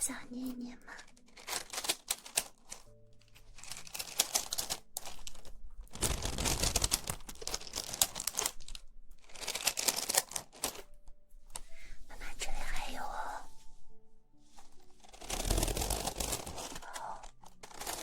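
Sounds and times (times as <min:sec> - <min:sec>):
stones clicking in hands: 0:01.2 - 0:10.9.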